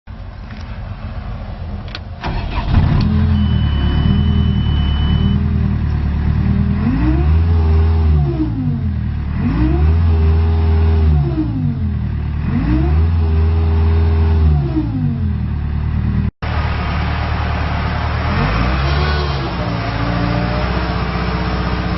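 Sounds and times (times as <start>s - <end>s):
diesel engine starting and revving: 0.3s - 21.9s
steady high beep: 3.3s - 5.4s.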